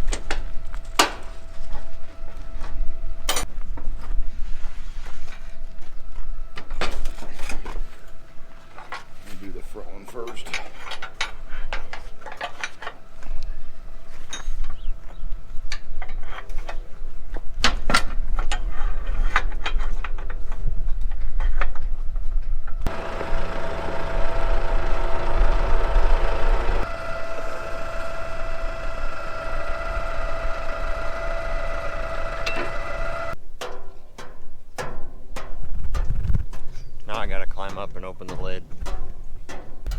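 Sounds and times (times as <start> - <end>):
machine drone with whine: 0.0 - 3.6, 22.6 - 33.4
metal clanks and knocks: 10.0 - 13.4, 37.6 - 39.9
low engine rumble: 22.2 - 33.4.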